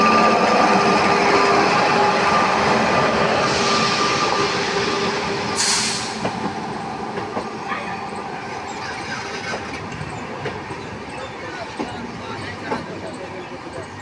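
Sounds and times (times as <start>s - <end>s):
train running past: 0.0s - 14.0s
short hiss: 5.6s - 6.2s.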